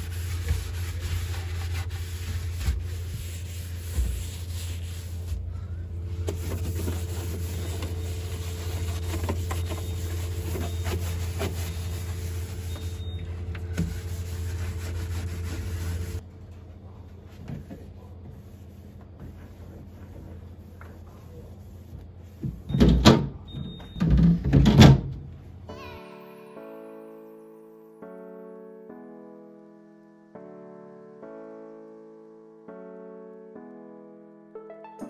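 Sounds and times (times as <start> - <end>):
appliance humming: 0.0 - 16.5.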